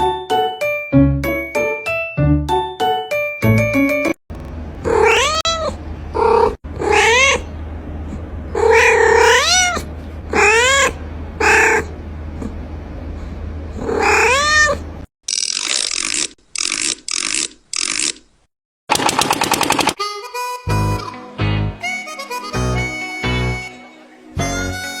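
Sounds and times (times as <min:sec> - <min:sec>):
cat meowing: 0:04.8 - 0:07.5, 0:08.6 - 0:11.9, 0:13.8 - 0:14.8.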